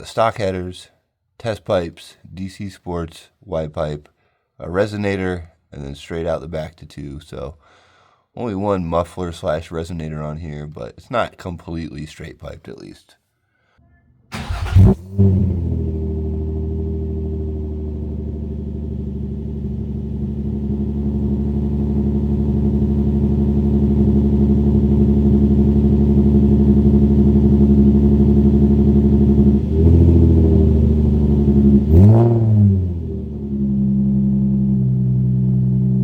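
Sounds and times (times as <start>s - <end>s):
car exhaust idling: 14.4s - 36.0s
engine throttle blips: 14.4s - 36.0s.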